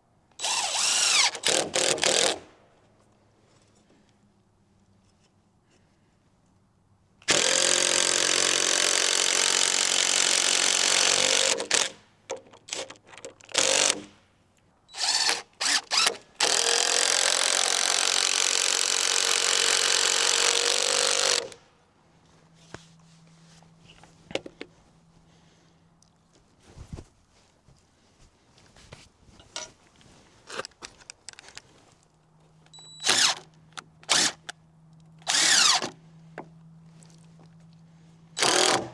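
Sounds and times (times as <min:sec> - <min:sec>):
power tool cutting lumber: 0:00.4 - 0:02.4, 0:07.3 - 0:11.9, 0:15.0 - 0:21.6, 0:33.0 - 0:33.4, 0:34.1 - 0:34.4, 0:35.2 - 0:36.0, 0:38.4 - 0:38.9.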